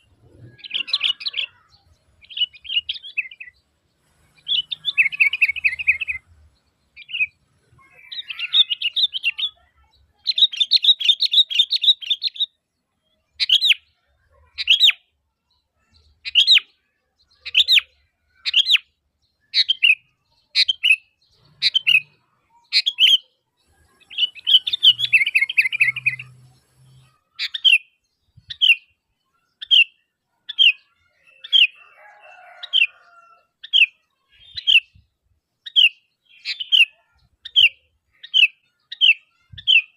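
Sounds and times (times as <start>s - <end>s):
bulbul chattering: 19.5s - 29.0s.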